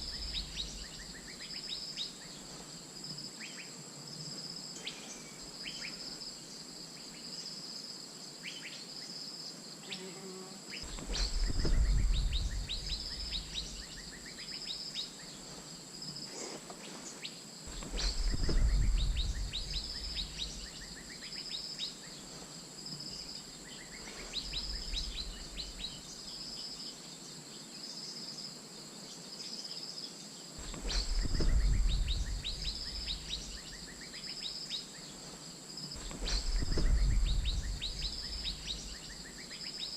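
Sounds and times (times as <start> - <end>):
bird calls: 0.0 - 2.7, 10.7 - 26.9, 30.6 - 39.9
pulsing insect buzz: 9.7 - 14.6
low rumble: 10.8 - 14.1, 17.7 - 20.8, 30.6 - 33.8, 36.0 - 39.2.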